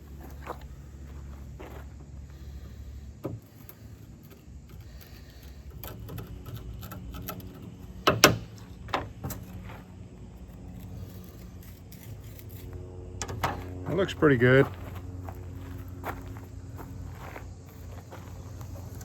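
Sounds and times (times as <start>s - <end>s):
scraping pith from a plant stalk: 10.4s - 13.4s.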